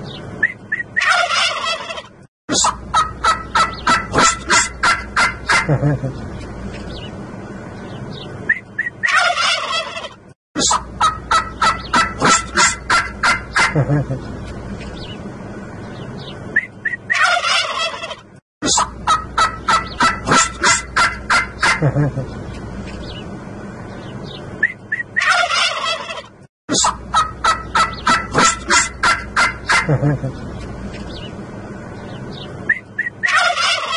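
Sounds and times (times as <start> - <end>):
turkeys gobbling: 0.4 - 6.2, 8.8 - 14.2, 16.8 - 22.3, 24.6 - 30.5, 32.7 - 33.9.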